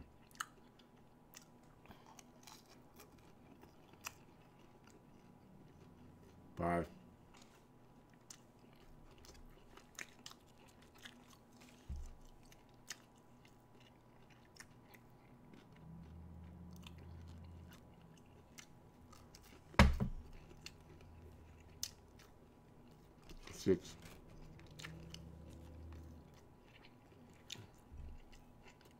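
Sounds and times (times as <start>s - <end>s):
person chewing: 0.1s - 6.6s, 7.3s - 28.9s
loud thump: 19.8s - 20.3s.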